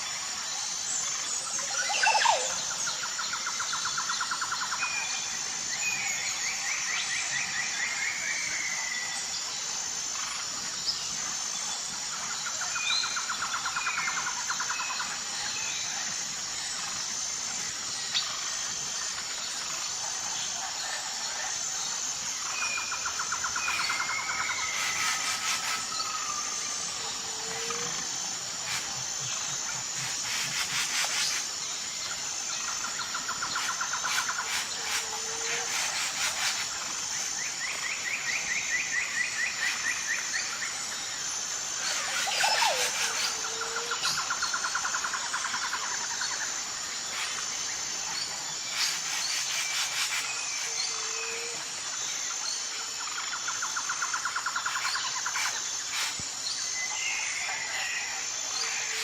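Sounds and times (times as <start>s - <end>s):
high pulsing insect drone: 0.0s - 59.0s
rapid clicking calls: 27.5s - 31.5s, 33.4s - 36.9s, 54.4s - 56.2s.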